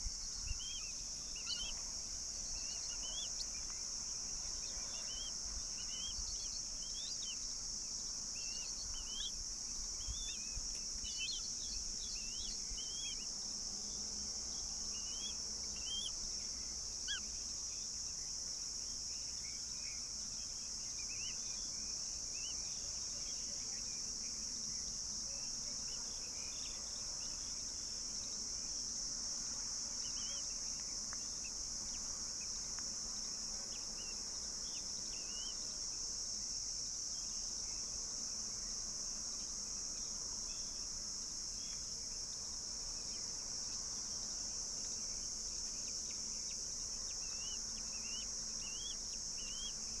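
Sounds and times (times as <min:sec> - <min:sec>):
faint bird chirps: 0:00.0 - 0:07.5, 0:08.3 - 0:13.3, 0:13.9 - 0:18.3
insects chirring: 0:00.0 - 0:50.0.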